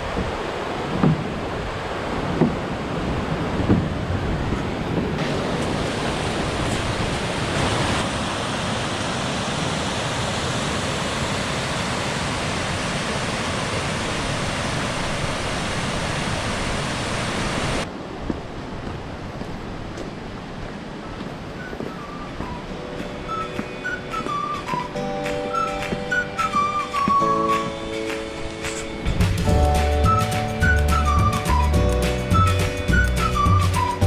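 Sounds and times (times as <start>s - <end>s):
stream water rushing: 0.0s - 34.0s
soft knocks: 1.0s - 1.3s, 2.4s - 2.6s.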